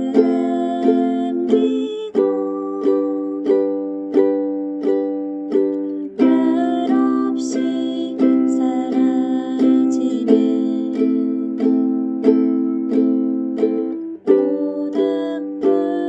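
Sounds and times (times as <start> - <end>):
plucked ukulele melody: 0.0 - 16.0
ukulele chords strummed: 0.0 - 16.0.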